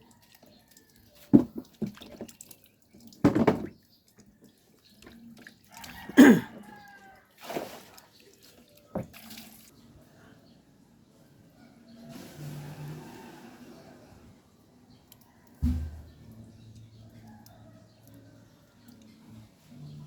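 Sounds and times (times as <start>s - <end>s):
water splashing: 7.4s - 9.7s.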